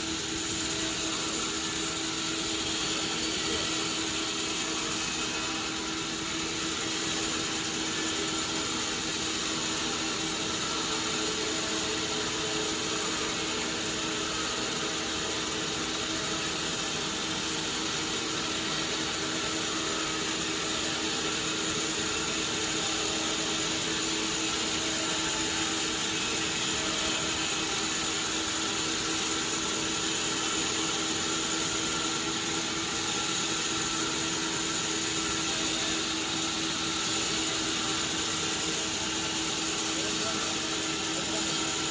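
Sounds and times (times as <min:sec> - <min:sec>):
sawmill machinery whirring: 0:00.0 - 0:41.9.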